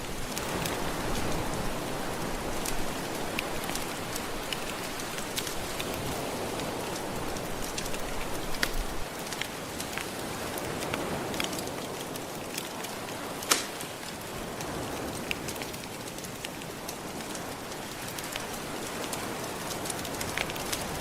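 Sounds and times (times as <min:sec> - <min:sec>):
crackling wood fire: 0:00.0 - 0:21.0
gentle ocean waves: 0:00.0 - 0:21.0.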